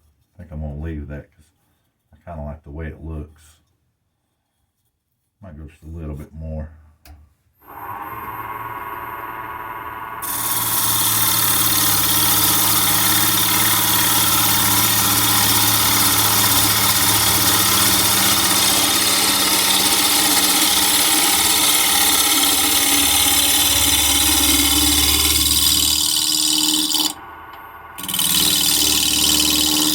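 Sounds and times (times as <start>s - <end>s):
lathe motor humming: 7.6s - 29.9s
gouge shaving wood hiss: 10.2s - 27.2s, 28.0s - 29.9s.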